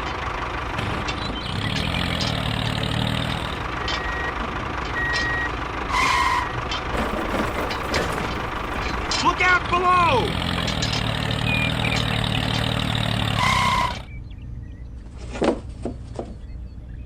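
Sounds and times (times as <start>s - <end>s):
engine running: 0.0s - 17.0s
reversing beeper: 3.8s - 6.6s.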